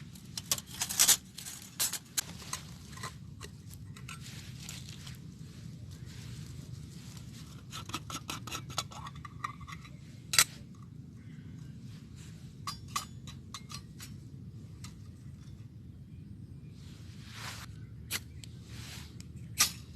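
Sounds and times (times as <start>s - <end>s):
small clicks and scrapes: 0.0s - 6.2s, 7.0s - 11.0s
low steady rumble: 0.0s - 19.9s.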